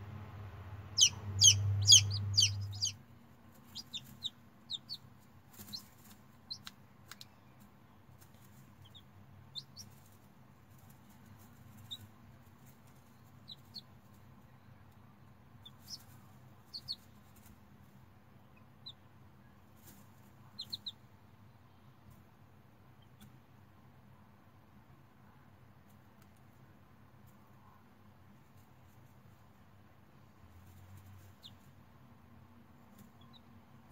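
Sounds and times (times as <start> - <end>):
chick peeping: 0.7 - 17.6, 18.5 - 19.1, 19.8 - 21.1, 23.0 - 23.4, 30.6 - 31.8, 32.8 - 33.9.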